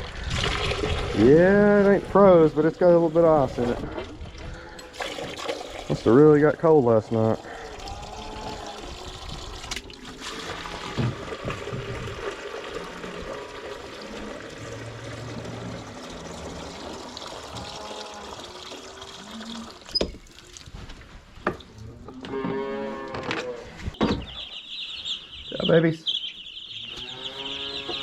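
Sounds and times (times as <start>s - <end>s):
water pouring: 0.0s - 21.9s.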